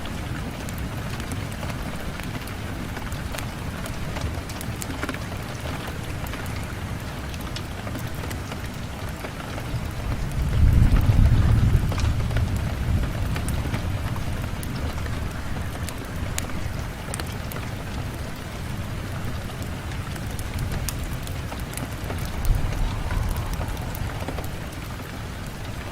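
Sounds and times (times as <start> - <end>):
steady rain: 0.0 - 25.9
thunder rumbling: 20.2 - 25.9.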